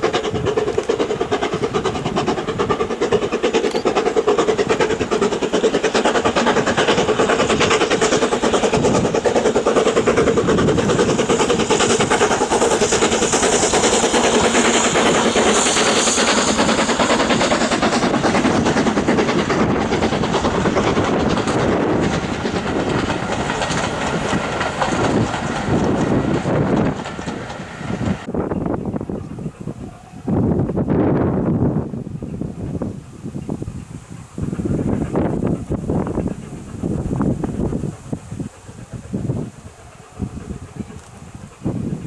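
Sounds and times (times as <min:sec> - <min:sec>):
steam locomotive chugging past: 0:00.0 - 0:42.0.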